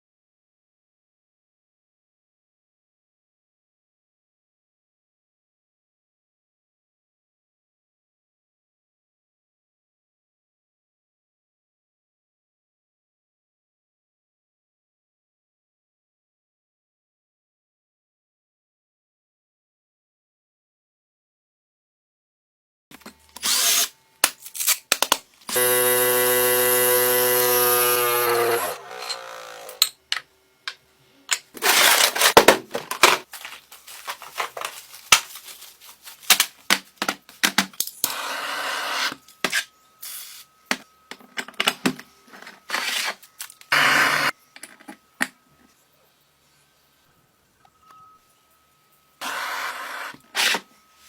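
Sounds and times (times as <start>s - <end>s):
electric drill running: 25.5s - 29.9s, 43.2s - 44.3s.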